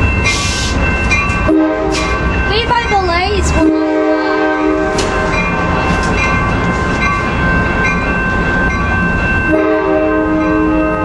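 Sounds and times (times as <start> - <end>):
train wheels rumbling: 0.0 - 11.0
train air horn chord: 1.5 - 2.1, 3.6 - 5.1, 9.5 - 11.0.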